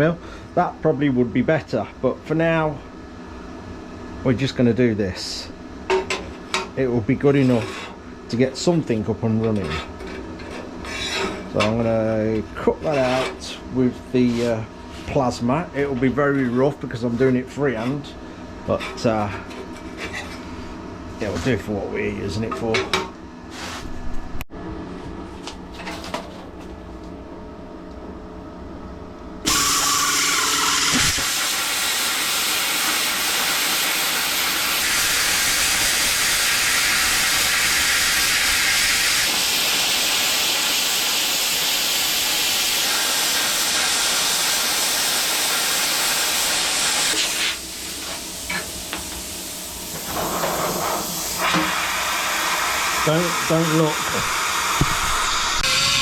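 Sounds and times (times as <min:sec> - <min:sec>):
plasma cutter hissing: 0:29.5 - 0:56.0.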